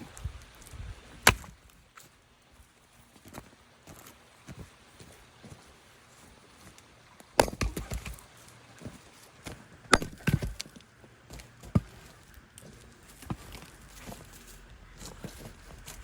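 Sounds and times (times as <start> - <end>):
axe striking firewood: 1.2 - 1.6, 7.4 - 8.2, 9.9 - 10.7, 11.3 - 12.2
wood cracking and knocking: 9.9 - 10.8.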